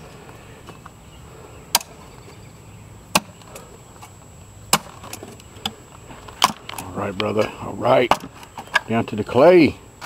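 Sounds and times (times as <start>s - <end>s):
low steady hum: 0.0s - 10.0s
hand tool striking ground: 4.7s - 5.4s.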